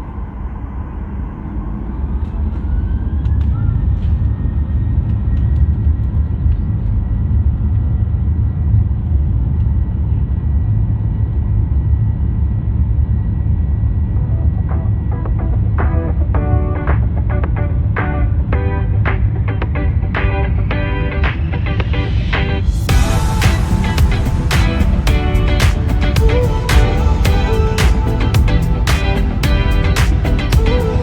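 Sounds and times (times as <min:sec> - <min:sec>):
jet engine whine: 0:00.0 - 0:09.0, 0:12.4 - 0:31.0.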